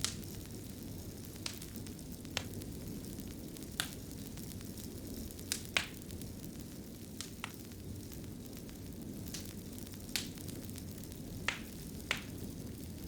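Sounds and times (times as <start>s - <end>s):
fire crackling and popping: 0.0s - 13.0s
low rumble of fire: 0.0s - 13.0s.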